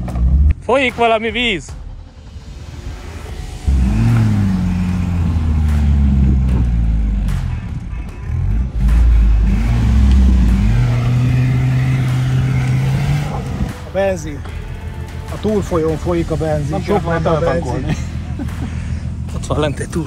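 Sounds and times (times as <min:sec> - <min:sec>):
car engine revving hard: 0:03.6 - 0:07.6, 0:08.3 - 0:13.9.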